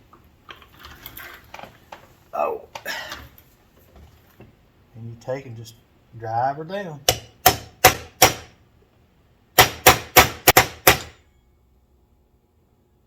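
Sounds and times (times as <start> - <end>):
hammer striking metal: 7.0 - 8.6, 9.6 - 11.2.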